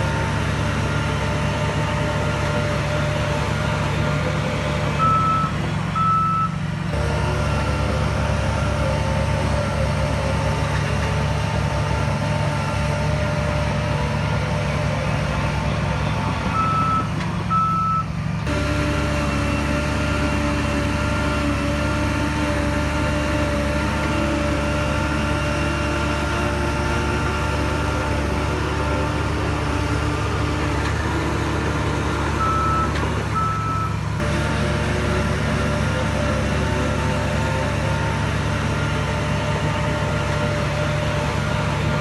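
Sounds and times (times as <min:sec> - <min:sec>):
heavy diesel engine running: 0:00.0 - 0:42.0
reversing alarm beeping: 0:05.0 - 0:06.6, 0:16.5 - 0:18.1, 0:32.4 - 0:34.0.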